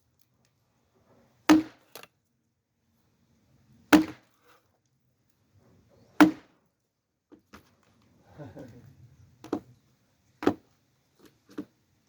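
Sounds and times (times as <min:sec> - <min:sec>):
axe chopping wood: 0:01.5 - 0:02.1, 0:03.9 - 0:04.3, 0:06.2 - 0:06.6.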